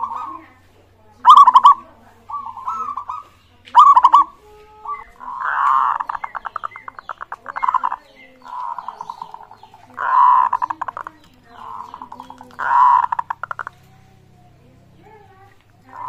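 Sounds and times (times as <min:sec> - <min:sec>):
doves cooing: 0:00.0 - 0:16.0.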